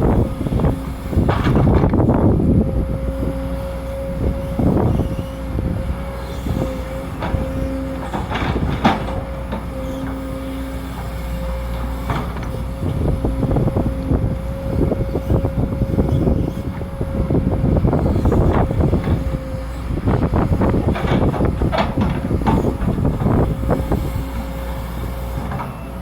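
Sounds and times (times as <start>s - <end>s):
excavator engine whine: 0.0s - 26.0s
digging knocks and clatter: 6.6s - 14.0s, 18.0s - 25.9s.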